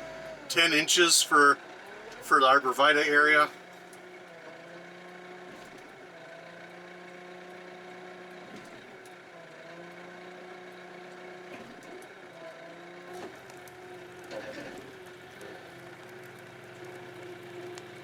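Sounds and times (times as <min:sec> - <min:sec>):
tractor diesel engine running: 0:00.0 - 0:01.6, 0:02.2 - 0:03.6.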